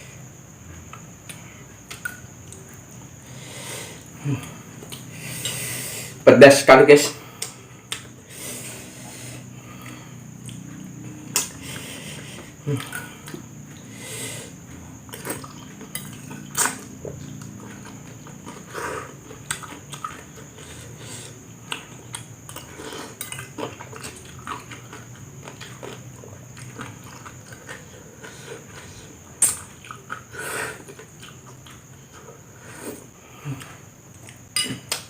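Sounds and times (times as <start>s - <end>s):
cutlery clinking on a dish: 34.6s - 35.0s.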